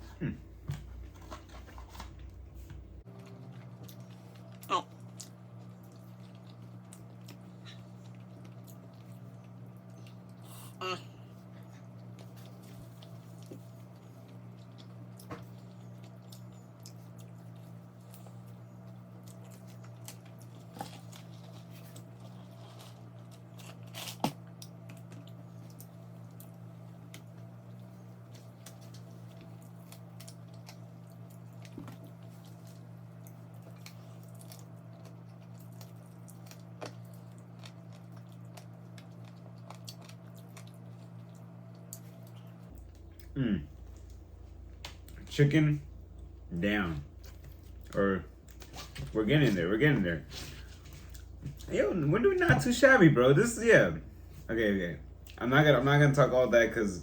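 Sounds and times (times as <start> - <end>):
steady low hum: 0.0 - 57.0
person chewing fried chicken: 3.1 - 45.2, 50.4 - 51.7.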